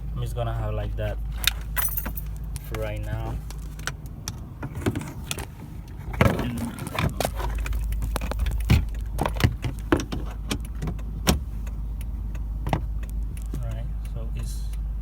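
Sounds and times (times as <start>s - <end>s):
keys jangling: 1.7s - 2.4s.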